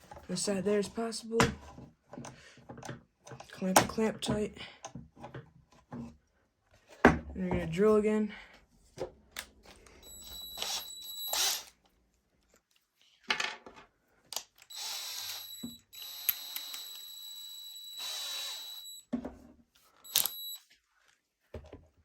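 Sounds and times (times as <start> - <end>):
electric drill whining: 10.0 - 11.7, 14.6 - 19.1, 20.0 - 20.6.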